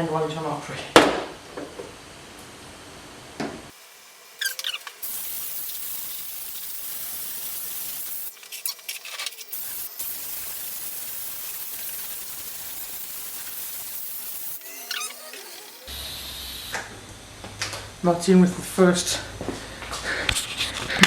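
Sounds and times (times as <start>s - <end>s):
steam cleaner hissing: 3.7s - 16.9s.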